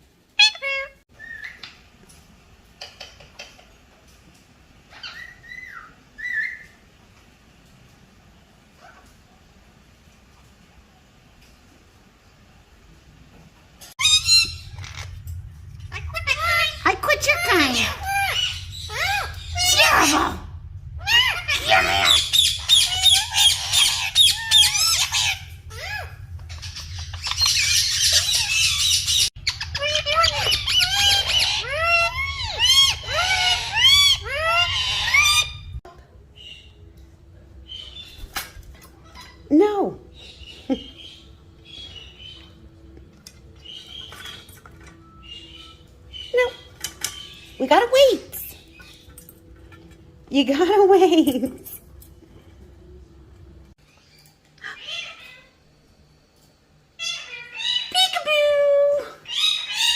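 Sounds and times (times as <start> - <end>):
parrot whistling: 14.0 - 15.2, 21.0 - 35.8.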